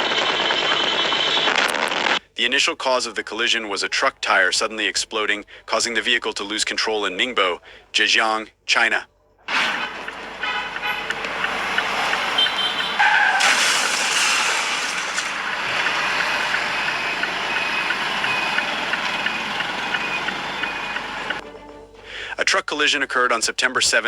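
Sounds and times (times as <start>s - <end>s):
road traffic noise: 9.2s - 22.5s.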